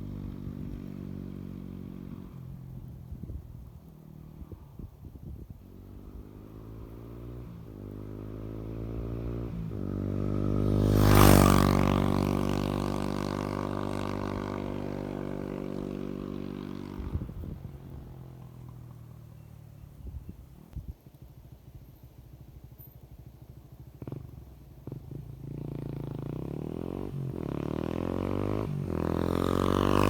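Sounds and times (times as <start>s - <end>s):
motorbike engine accelerating: 5.8s - 19.5s, 23.5s - 30.0s.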